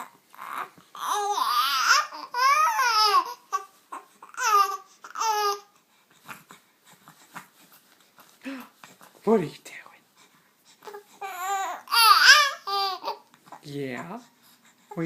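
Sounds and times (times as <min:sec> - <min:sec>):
baby calling high-pitched: 0:11.2 - 0:13.2.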